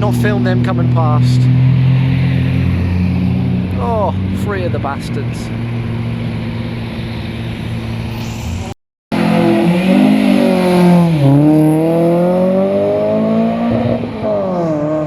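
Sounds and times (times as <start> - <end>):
car engine accelerating: 9.1 - 15.0.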